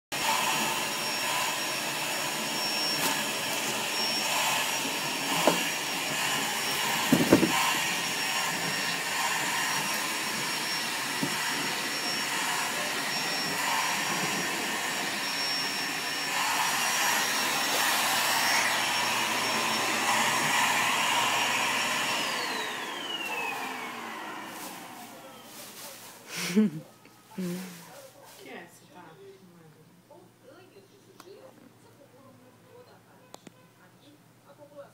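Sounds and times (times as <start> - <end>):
vacuum cleaner motor whine: 0.2 - 26.7
knocks: 7.1 - 7.6.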